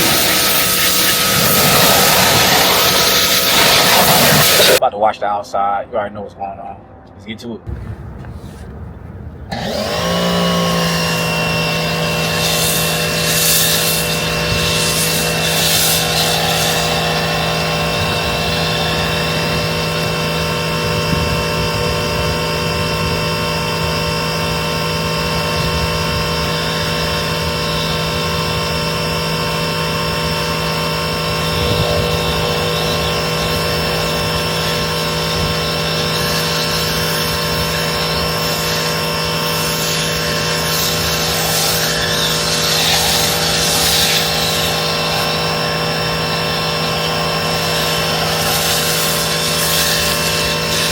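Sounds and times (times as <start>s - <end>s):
pressure washer running: 0.0s - 4.8s, 7.7s - 50.9s
water spray rushing: 0.0s - 4.8s, 7.7s - 20.9s, 30.9s - 50.9s.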